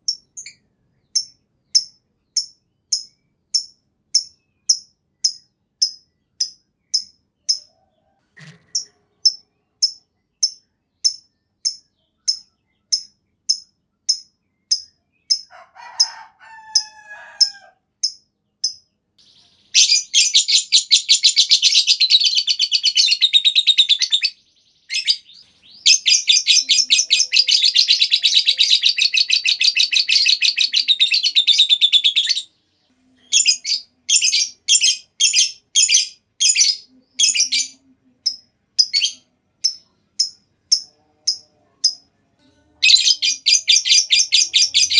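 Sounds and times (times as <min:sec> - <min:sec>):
bird chirping: 0:00.0 - 0:44.9
bird chattering trills: 0:16.8 - 0:32.5, 0:42.8 - 0:44.9.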